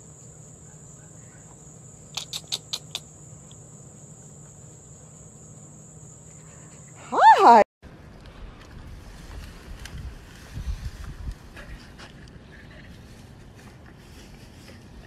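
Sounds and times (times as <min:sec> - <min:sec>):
insect chorus: 0:00.0 - 0:07.6.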